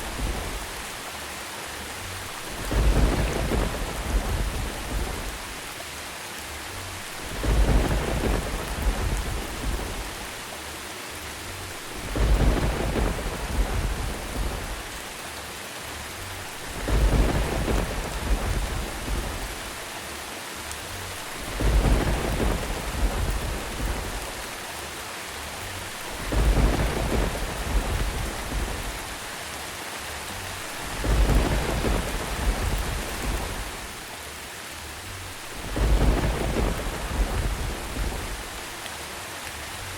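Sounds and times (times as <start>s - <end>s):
low thunder rumble: 0.0s - 0.9s, 2.3s - 5.7s, 7.0s - 10.4s, 11.7s - 15.1s, 16.4s - 19.9s, 21.1s - 24.6s, 25.8s - 29.3s, 30.5s - 34.0s, 35.3s - 38.7s
steady rain hiss: 0.0s - 39.9s.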